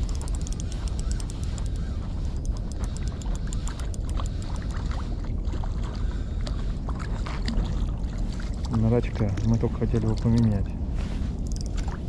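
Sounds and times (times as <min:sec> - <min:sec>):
small fast clicks: 0:00.0 - 0:04.8
wind rumbling on microphone: 0:00.0 - 0:12.0.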